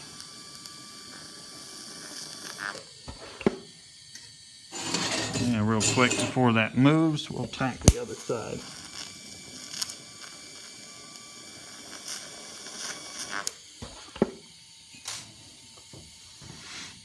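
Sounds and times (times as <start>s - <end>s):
welding arc hissing: 6.4s - 9.0s.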